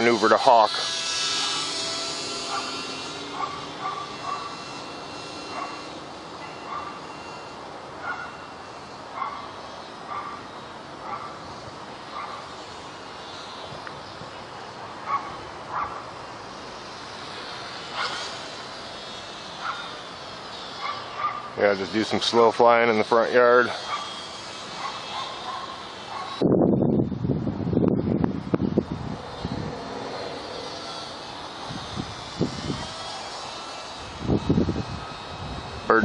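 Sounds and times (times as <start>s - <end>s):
dog barking: 2.5s - 2.7s, 3.4s - 4.5s, 6.7s - 7.0s, 8.0s - 8.3s, 9.2s - 9.5s, 10.1s - 10.4s, 15.1s - 16.0s, 20.8s - 21.5s, 23.9s - 24.1s, 24.8s - 26.4s.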